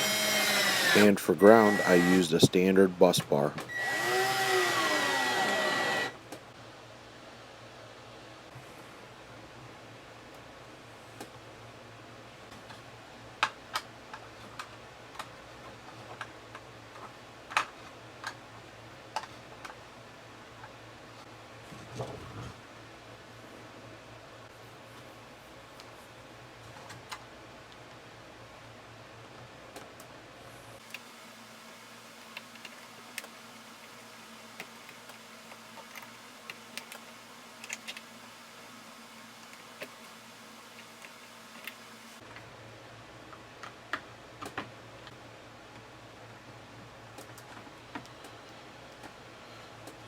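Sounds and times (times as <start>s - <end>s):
faint steady hum: 0.0s - 21.8s.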